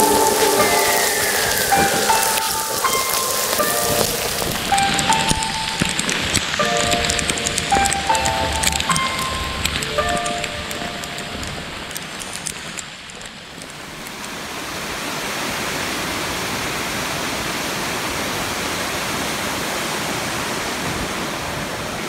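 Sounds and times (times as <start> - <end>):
background music: 0.0 - 12.0
waterfall rushing: 0.0 - 13.1, 13.8 - 22.0.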